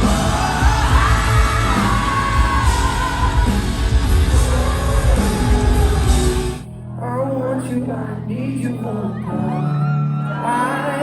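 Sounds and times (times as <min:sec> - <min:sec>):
people yelling: 0:00.0 - 0:03.8
band playing loudly: 0:00.0 - 0:06.6.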